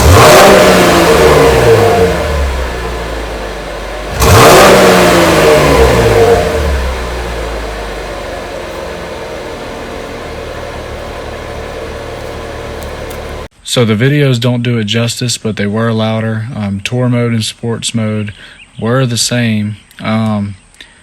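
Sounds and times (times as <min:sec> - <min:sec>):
car engine revving then idling: 0:00.0 - 0:13.5.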